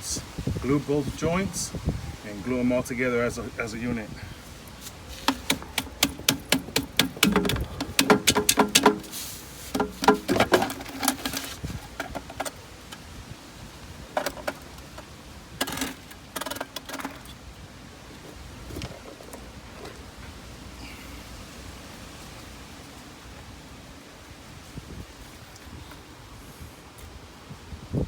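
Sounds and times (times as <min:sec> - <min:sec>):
plastic pipe parts knocking: 0:05.1 - 0:12.6.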